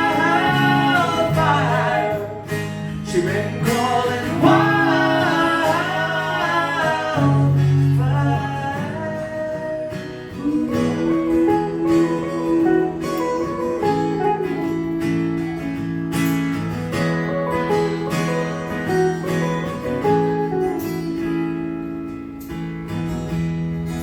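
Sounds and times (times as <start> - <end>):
person singing: 0.0 - 14.7
acoustic guitar: 0.0 - 24.0.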